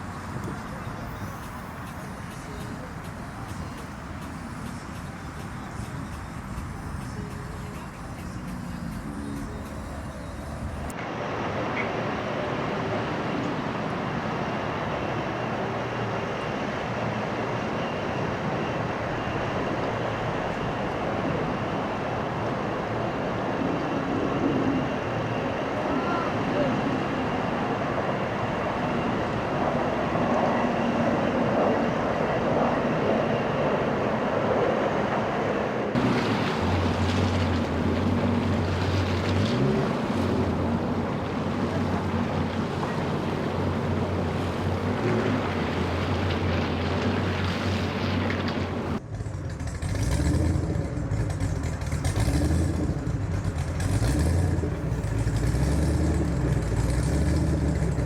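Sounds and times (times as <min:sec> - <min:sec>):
boat engine idling: 0:00.0 - 0:10.9, 0:36.0 - 0:58.0
wind and water noise: 0:00.0 - 0:58.0
engine with pulsing note: 0:00.8 - 0:11.5, 0:12.1 - 0:34.2, 0:36.0 - 0:58.0.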